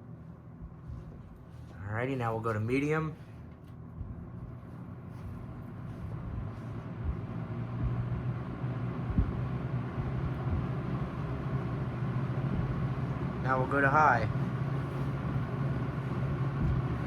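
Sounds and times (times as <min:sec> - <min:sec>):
box fan motor hum and air rush: 0:00.0 - 0:17.0
short low thump: 0:06.2 - 0:08.2, 0:09.1 - 0:10.7, 0:12.5 - 0:12.8.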